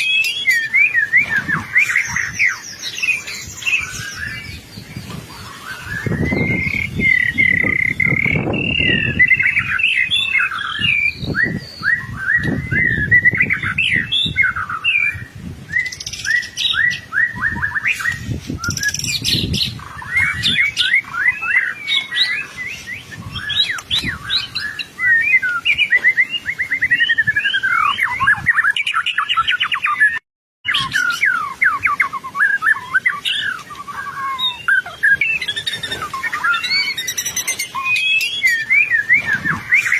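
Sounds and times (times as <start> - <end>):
bird singing trills and whistles: 0.0 - 39.9.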